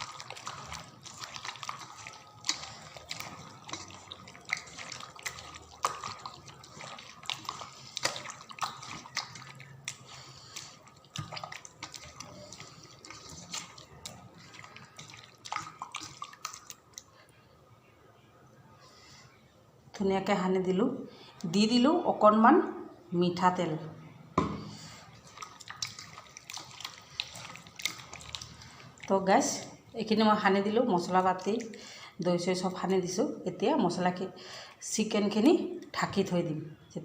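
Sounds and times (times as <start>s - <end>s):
hands mixing wet chicken: 0.0s - 17.3s, 24.6s - 33.3s.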